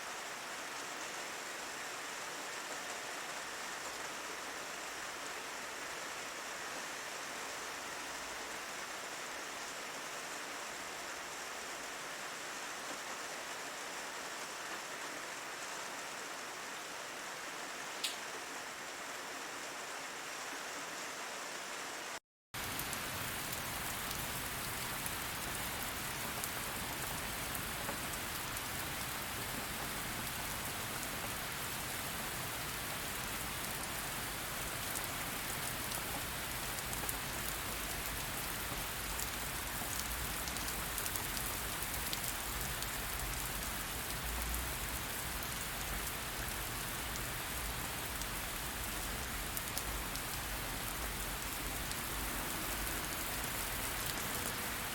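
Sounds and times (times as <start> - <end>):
steady rain: 0.0 - 54.9
raindrops ticking: 18.0 - 18.2.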